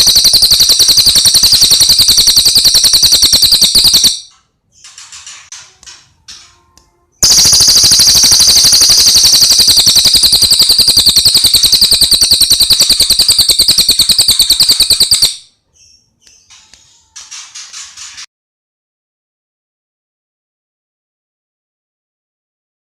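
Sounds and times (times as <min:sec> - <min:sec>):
high bird chirping: 0:00.0 - 0:04.9, 0:07.2 - 0:17.1
bird rattling trill: 0:00.0 - 0:05.3, 0:07.2 - 0:15.5.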